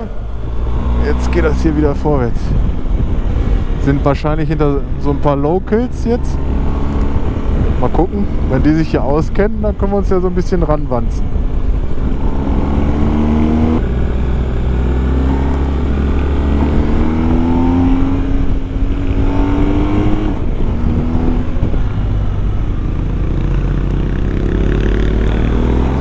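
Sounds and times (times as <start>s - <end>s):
motorcycle engine accelerating: 0.0s - 9.9s, 11.2s - 26.0s
wind rush on microphone: 0.0s - 26.0s.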